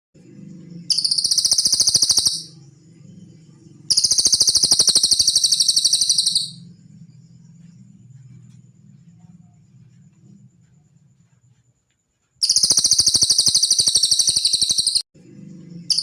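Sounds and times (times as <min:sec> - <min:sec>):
songbird trilling: 0:00.9 - 0:02.5, 0:03.9 - 0:06.7, 0:12.4 - 0:15.0.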